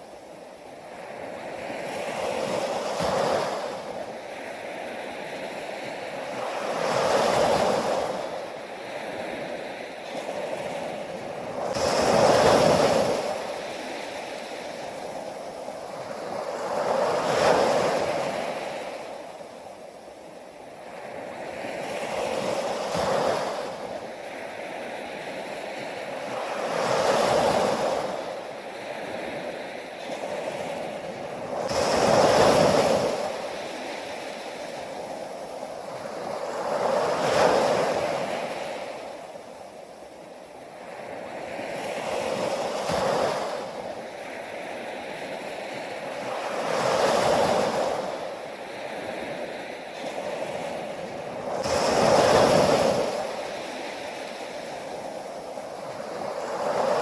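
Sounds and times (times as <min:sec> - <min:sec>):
ocean waves washing on shore: 0:00.0 - 0:57.0.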